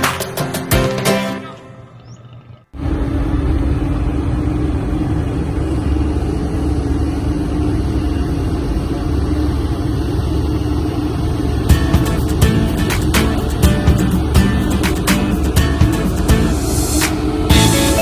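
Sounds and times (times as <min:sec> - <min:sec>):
ferry engines rumbling: 0:00.0 - 0:18.0.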